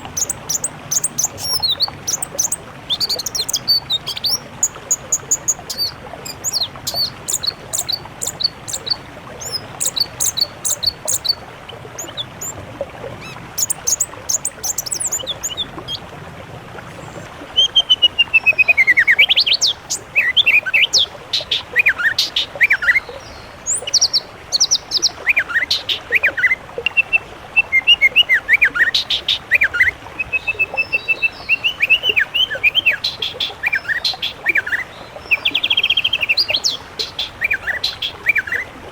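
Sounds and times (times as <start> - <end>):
bird trills and whistles: 0.0 - 11.4, 13.2 - 16.0
songbirds singing: 0.0 - 17.8, 18.4 - 26.6, 27.7 - 38.7.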